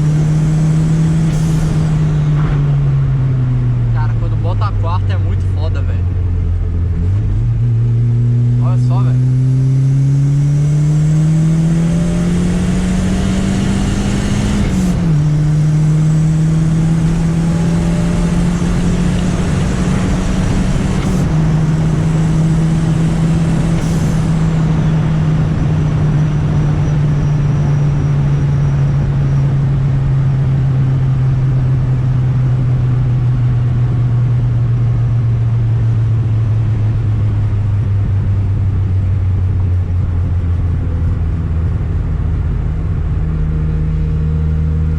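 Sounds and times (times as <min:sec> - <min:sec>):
car engine changing gears: 0:00.0 - 0:44.9
road and wind noise: 0:00.0 - 0:44.9.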